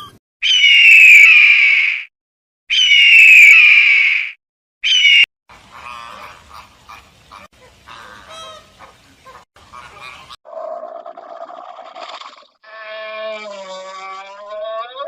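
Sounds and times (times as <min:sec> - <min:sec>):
bird screeching: 0:00.4 - 0:02.1, 0:02.7 - 0:05.3.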